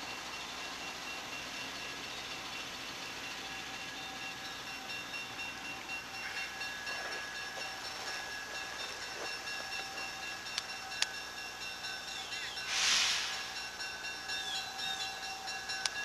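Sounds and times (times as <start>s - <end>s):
faint train noise: 0.0s - 16.0s
thin steady tones: 0.0s - 16.0s.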